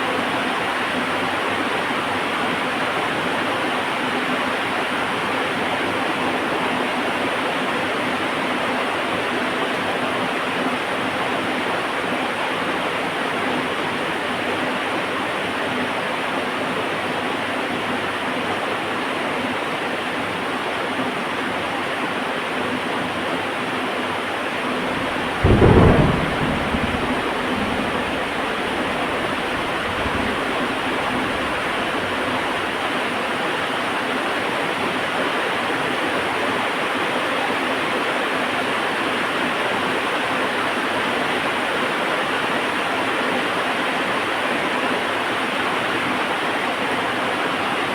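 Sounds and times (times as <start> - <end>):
heavy rain: 0.0 - 47.9
thunder crack and rumble: 24.6 - 33.2.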